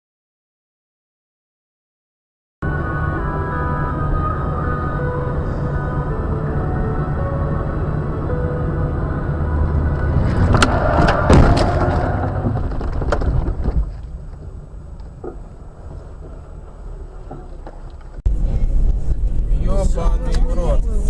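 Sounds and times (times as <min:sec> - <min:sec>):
car driving rumble: 0:02.7 - 0:21.0
sharp knocks and bangs: 0:10.4 - 0:14.0.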